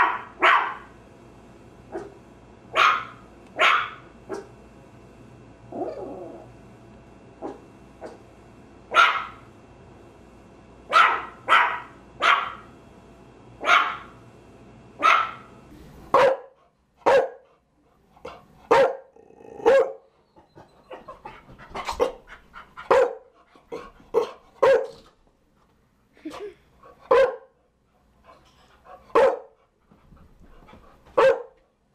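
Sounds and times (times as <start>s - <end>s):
small dog barking sharply: 0.0s - 0.8s, 2.8s - 4.5s, 8.9s - 9.4s, 10.9s - 12.6s, 13.6s - 14.1s, 15.0s - 15.5s, 27.1s - 27.4s
faint background hum: 0.0s - 31.9s
dog yapping: 2.8s - 4.5s, 15.0s - 15.5s.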